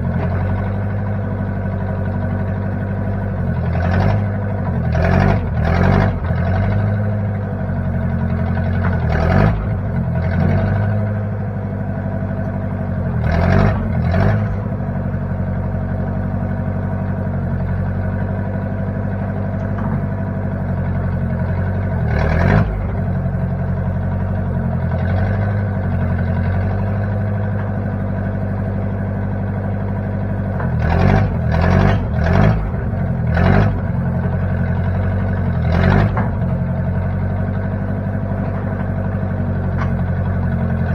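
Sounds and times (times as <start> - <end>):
tractor engine running: 0.0 - 40.9
knocks and clunks: 19.5 - 20.2, 35.9 - 36.6.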